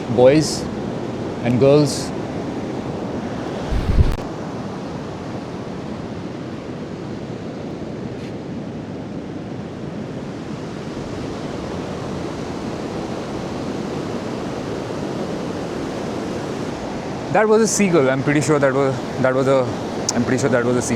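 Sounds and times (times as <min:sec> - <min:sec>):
sea surf breaking: 0:03.3 - 0:04.2
wind on microphone: 0:03.4 - 0:04.2
low thump: 0:03.6 - 0:04.2.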